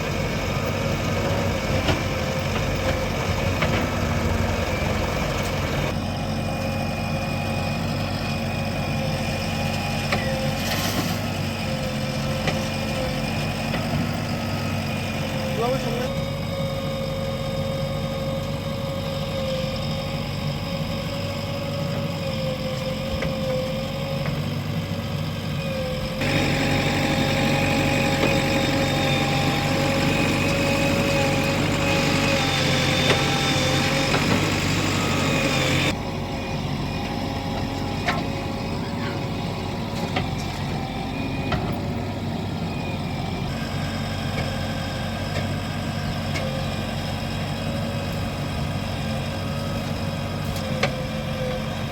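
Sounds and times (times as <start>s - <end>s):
diesel engines running: 0.0s - 51.9s
steady whine: 25.6s - 43.6s.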